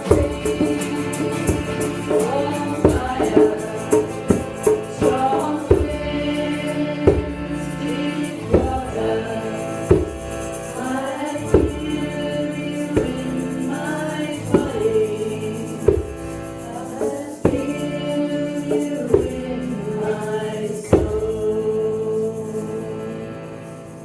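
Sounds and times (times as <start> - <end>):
hand drum strikes: 0.0 - 9.2, 9.8 - 12.0, 12.8 - 18.0, 20.9 - 21.3
voices singing a chant: 0.0 - 24.0.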